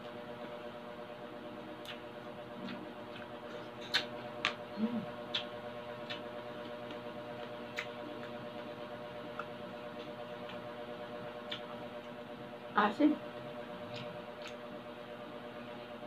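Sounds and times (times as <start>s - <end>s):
crunchy chewing: 1.6s - 12.2s, 13.7s - 14.7s.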